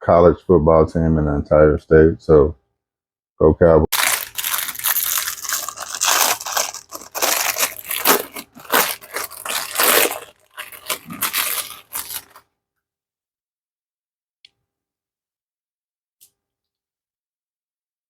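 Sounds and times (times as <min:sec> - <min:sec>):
plastic packaging crinkling: 0:03.9 - 0:12.4.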